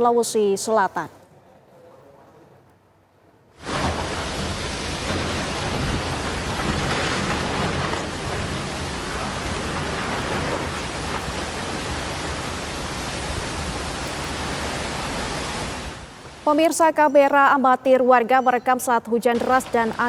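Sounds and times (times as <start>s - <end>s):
strong wind: 3.6s - 16.4s
heavy rain: 3.6s - 17.0s.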